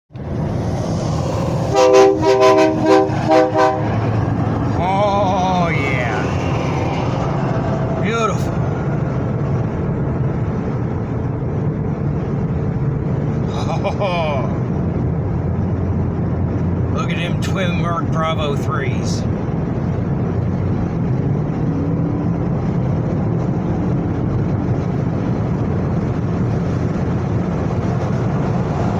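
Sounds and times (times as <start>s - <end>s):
highway traffic noise: 0.1s - 28.9s
air horn blasts: 1.7s - 4.0s.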